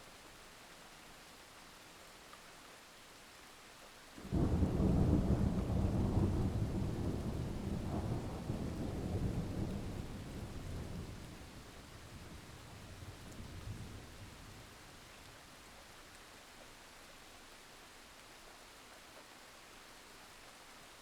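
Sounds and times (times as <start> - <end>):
steady rain: 0.0 - 21.0
thunderclap with deep rumble: 4.3 - 14.4.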